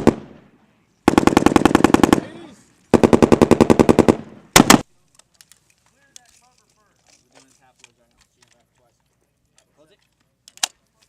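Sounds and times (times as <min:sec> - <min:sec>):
machine gun firing bursts: 0:01.1 - 0:04.8.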